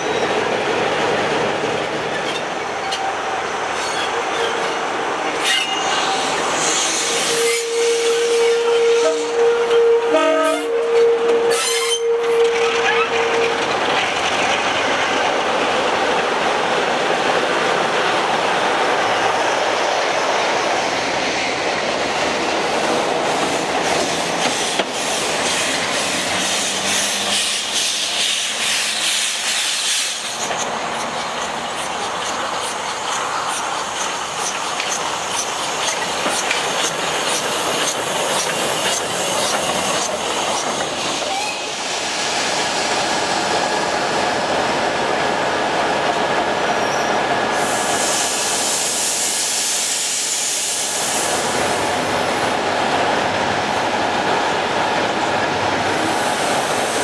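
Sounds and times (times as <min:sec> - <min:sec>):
steam hissing: 0:05.4 - 0:09.5, 0:19.2 - 0:44.1, 0:47.4 - 0:52.5, 0:55.9 - 0:57.0
locomotive horn: 0:07.2 - 0:13.7
train wheels clattering: 0:23.3 - 0:41.4.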